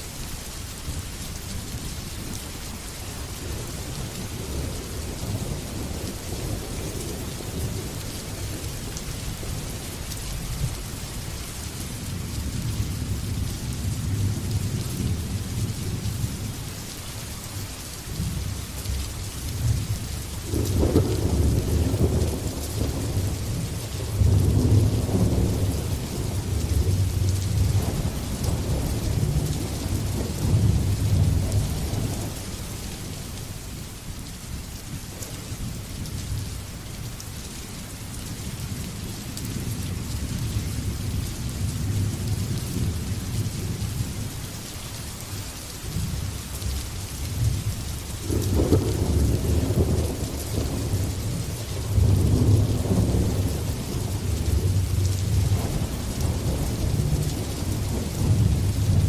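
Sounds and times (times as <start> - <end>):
heavy rain hissing: 0.0 - 59.0
rolling thunder: 20.4 - 33.2, 47.3 - 59.0.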